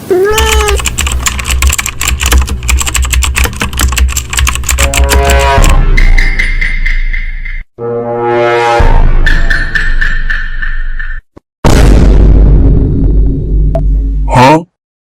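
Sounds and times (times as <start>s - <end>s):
cat meowing: 0.0s - 0.8s
computer keyboard typing: 0.3s - 5.8s.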